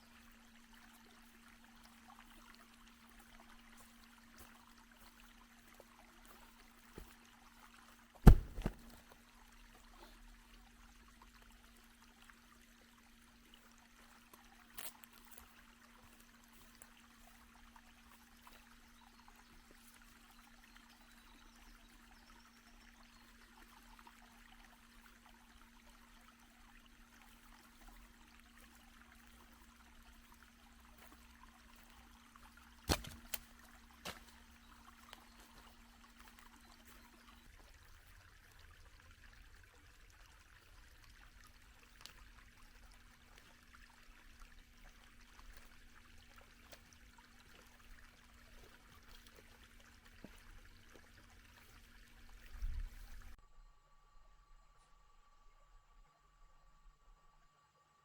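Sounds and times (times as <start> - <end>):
faint water trickling: 0.0 - 57.7
sharp knocks: 8.2 - 9.0.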